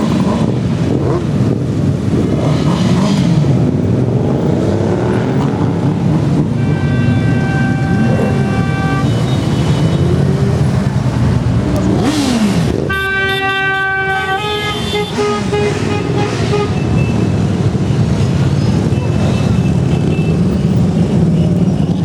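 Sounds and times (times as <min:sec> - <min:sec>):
motorcycle engines revving: 0:00.0 - 0:22.0
horns honking: 0:06.2 - 0:22.0.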